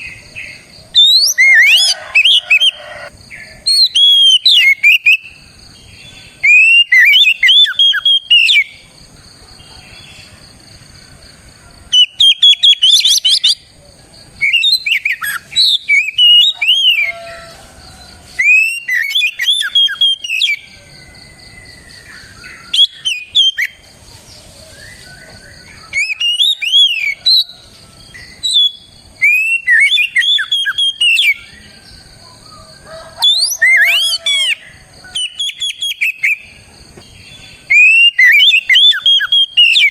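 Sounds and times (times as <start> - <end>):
bird singing whistled phrases: 0.9 - 3.1, 3.7 - 5.4, 6.4 - 8.8, 12.0 - 13.6, 14.4 - 17.5, 18.4 - 20.6, 22.6 - 23.8, 24.7 - 27.5, 28.2 - 31.6, 33.2 - 36.5, 37.7 - 39.9.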